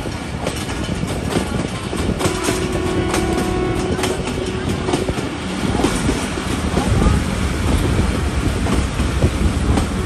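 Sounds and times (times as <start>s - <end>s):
train rumbling on rails: 0.0s - 10.0s.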